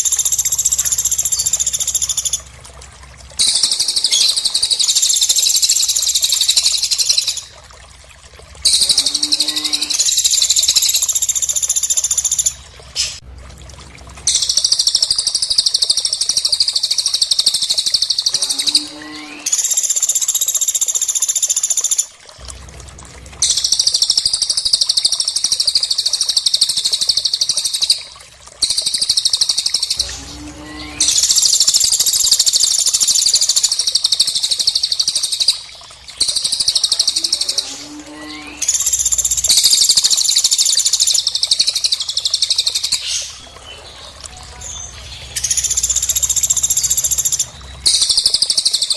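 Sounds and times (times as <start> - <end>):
high-pitched bird chattering: 3.4 - 7.5, 8.7 - 13.2, 14.3 - 20.6, 36.2 - 43.5, 45.4 - 48.9.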